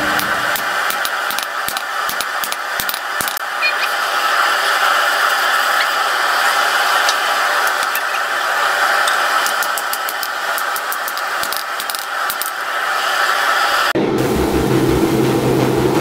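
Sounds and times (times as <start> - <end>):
deeper drone: 0.0 - 0.9, 12.6 - 16.0
shop machinery running: 0.0 - 16.0
forge roaring: 12.2 - 16.0.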